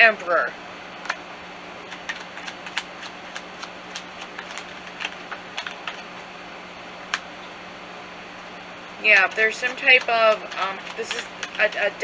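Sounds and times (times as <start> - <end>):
low room hum: 0.0 - 12.0
cards clicking and snapping: 1.9 - 6.1, 7.1 - 7.3, 9.2 - 12.0.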